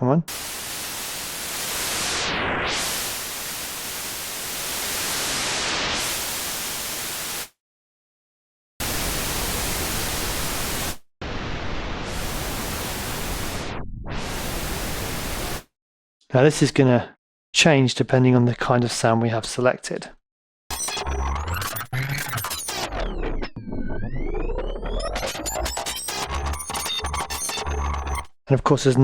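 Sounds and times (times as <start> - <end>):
synthesizer hiss: 0.3 - 7.4.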